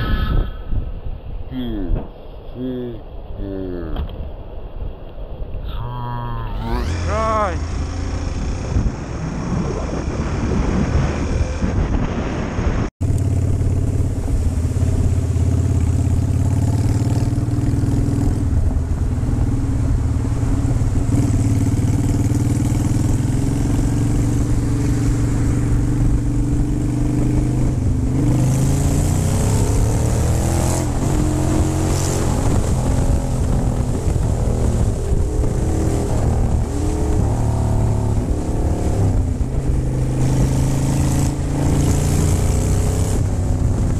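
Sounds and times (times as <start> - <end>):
loud wind noise: 0.0 - 43.9
motorcycle engine running: 6.6 - 9.5, 13.0 - 30.0.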